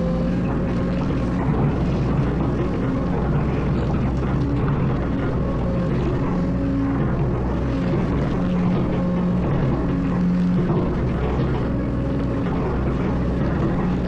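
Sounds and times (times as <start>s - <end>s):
excavator diesel engine: 0.0s - 14.0s.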